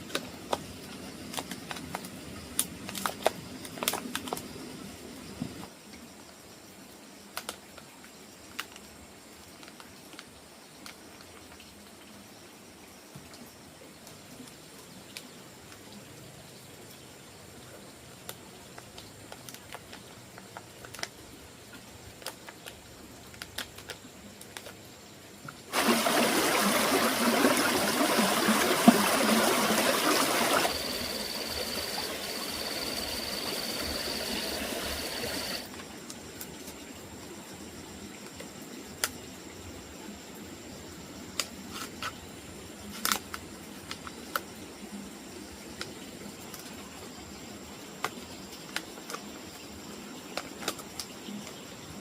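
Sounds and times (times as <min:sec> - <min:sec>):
running water: 0:25.4 - 0:35.8.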